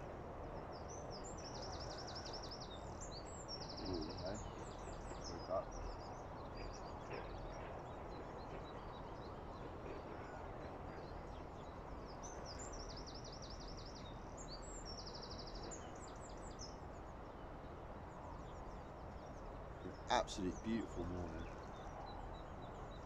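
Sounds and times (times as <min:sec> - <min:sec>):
low outdoor background noise: 0:00.0 - 0:23.0
songbirds singing: 0:00.0 - 0:23.0
bird trill: 0:01.4 - 0:06.9.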